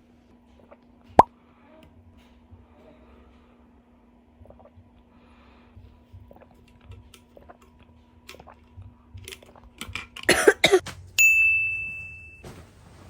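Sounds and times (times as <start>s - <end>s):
person coughing: 10.3s - 10.9s
high bright ding: 11.2s - 12.5s.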